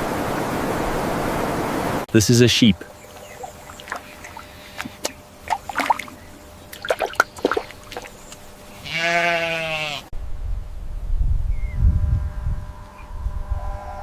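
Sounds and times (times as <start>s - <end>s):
sheep bleating: 8.7s - 10.1s
low rumble: 10.2s - 14.0s.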